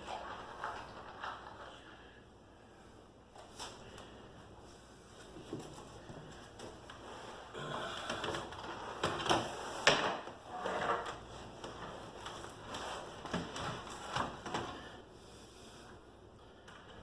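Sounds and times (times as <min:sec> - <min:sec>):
objects knocking and clattering: 0:00.0 - 0:01.9.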